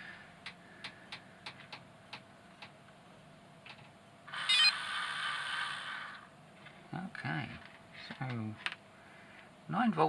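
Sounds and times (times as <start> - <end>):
small motor whining: 4.3 - 6.3.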